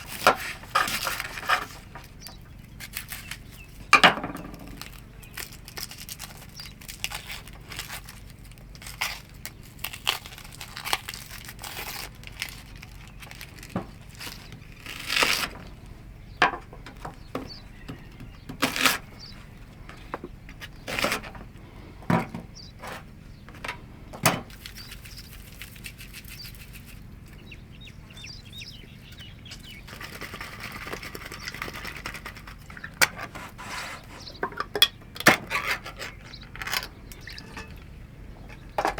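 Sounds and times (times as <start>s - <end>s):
objects being handled: 0.0s - 15.8s, 29.9s - 38.9s
low steady hum: 0.0s - 38.9s.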